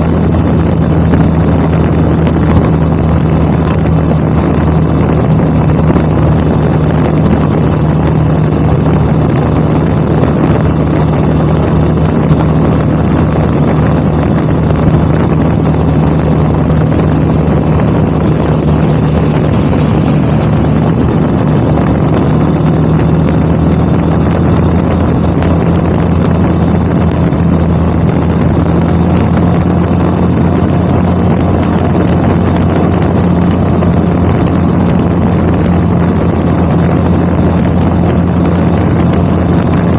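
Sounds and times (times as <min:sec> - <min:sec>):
motorcycle engine and exhaust: 0:00.0 - 0:39.9
wind rushing over microphone: 0:00.0 - 0:39.9.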